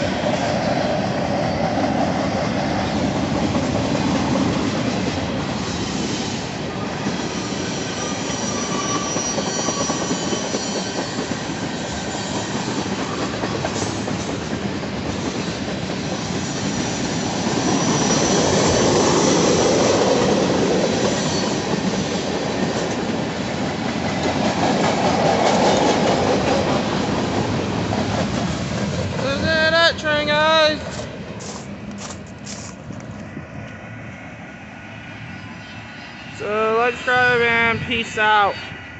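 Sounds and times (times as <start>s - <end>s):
freight train wheel rumble: 0.0s - 38.4s
high-pitched wheel squeals: 7.1s - 11.2s, 16.2s - 19.6s.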